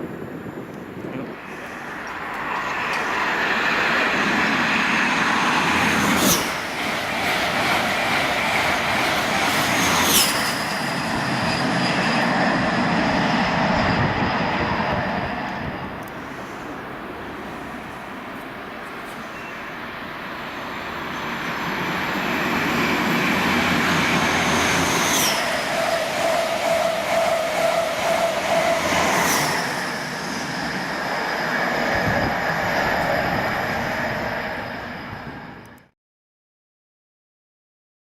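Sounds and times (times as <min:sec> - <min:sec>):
train passing at speed: 0:00.0 - 0:36.0
wheels rattling over rails: 0:01.5 - 0:14.2, 0:20.4 - 0:34.7.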